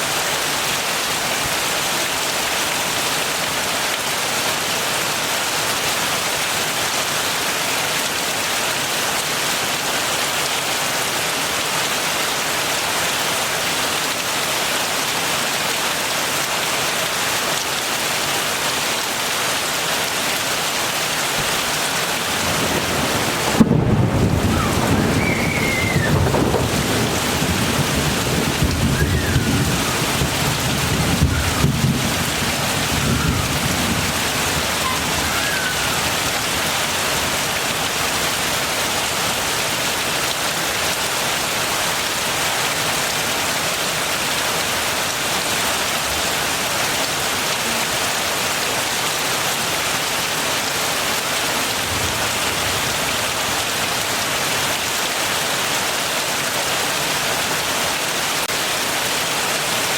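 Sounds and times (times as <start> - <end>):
heavy rain: 0.0 - 59.9
distant thunder rumbling: 22.2 - 36.5.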